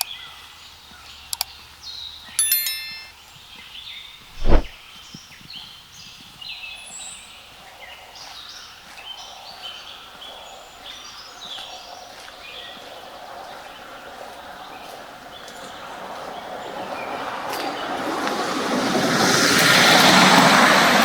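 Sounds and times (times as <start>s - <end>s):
songbirds chirping: 4.9s - 17.2s.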